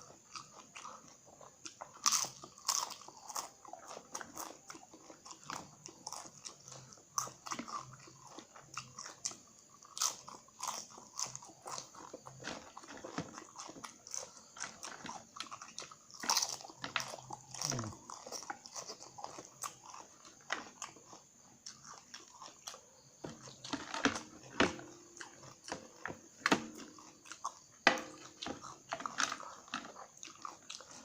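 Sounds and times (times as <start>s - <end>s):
crunching crispy chips: 1.7s - 26.0s.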